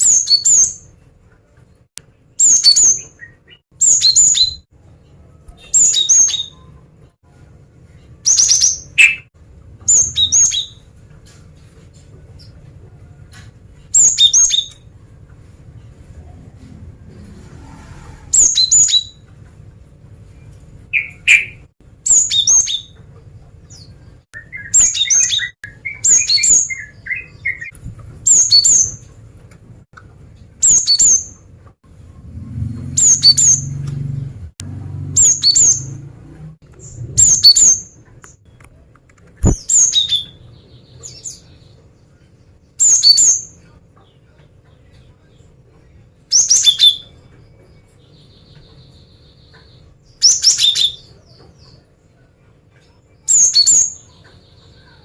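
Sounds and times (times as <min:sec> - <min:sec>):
low rumbling noise: 0:14.9 - 0:20.9, 0:31.4 - 0:38.4
sharp click: 0:39.4 - 0:39.7.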